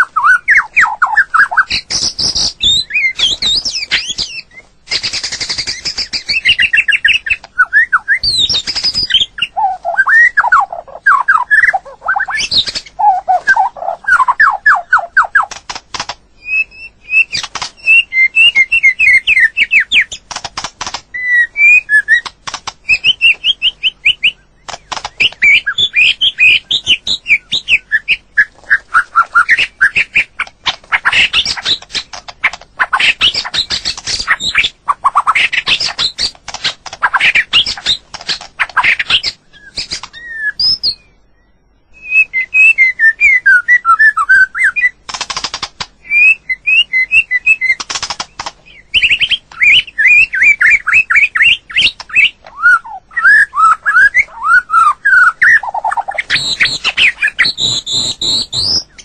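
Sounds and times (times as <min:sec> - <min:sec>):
bird singing whistled notes: 0:00.0 - 0:15.6, 0:16.4 - 0:20.2, 0:21.1 - 0:32.1, 0:38.8 - 0:45.0, 0:46.0 - 0:47.8, 0:48.7 - 0:59.0
bird clicking notes: 0:00.0 - 0:16.2, 0:17.1 - 0:27.0, 0:44.8 - 0:46.0, 0:47.5 - 0:52.6.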